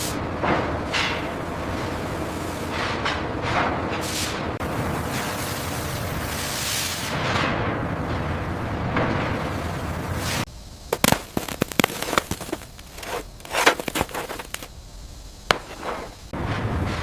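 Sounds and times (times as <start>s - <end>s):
steady noise: 10.4s - 16.5s
sharp cracks and snaps: 10.9s - 14.7s.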